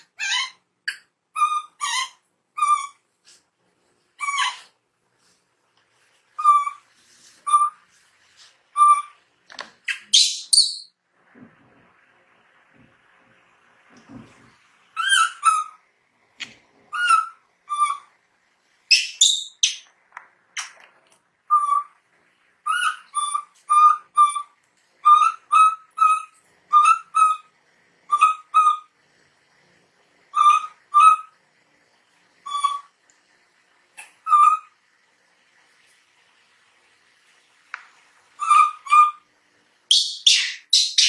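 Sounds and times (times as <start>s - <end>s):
baby monkey high-pitched cries: 0.1s - 0.6s, 1.4s - 3.0s, 4.2s - 4.7s.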